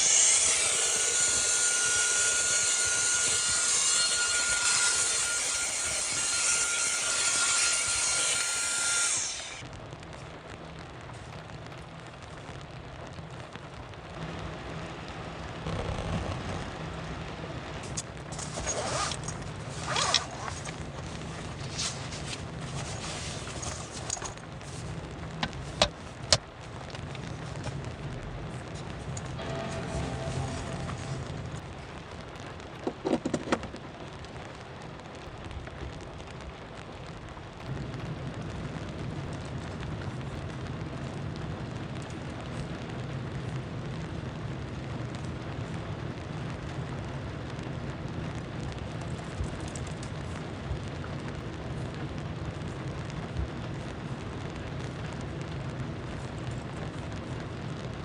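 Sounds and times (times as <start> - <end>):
rain falling: 0.0 - 58.0
steady low hum: 13.5 - 32.6.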